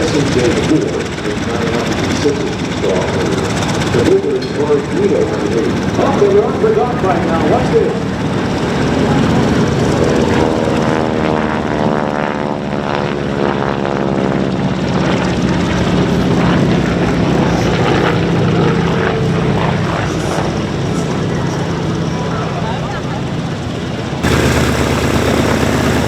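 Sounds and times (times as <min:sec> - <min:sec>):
propeller plane flying past: 0:24.2 - 0:26.0.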